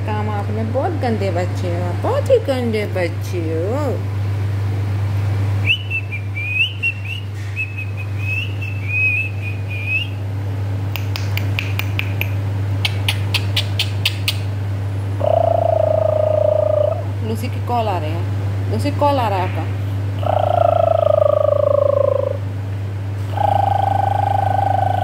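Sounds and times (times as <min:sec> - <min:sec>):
parrot whistling: 0:05.6 - 0:10.2, 0:12.8 - 0:14.5
parrot clicking: 0:10.9 - 0:14.5.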